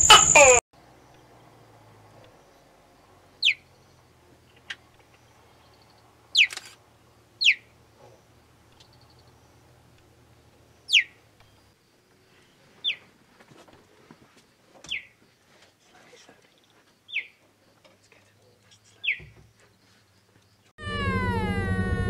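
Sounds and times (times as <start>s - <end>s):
animal chirping: 0.0s - 0.6s, 3.4s - 3.6s, 7.4s - 7.7s, 10.9s - 11.2s, 12.8s - 13.0s, 17.1s - 17.4s, 19.0s - 19.2s.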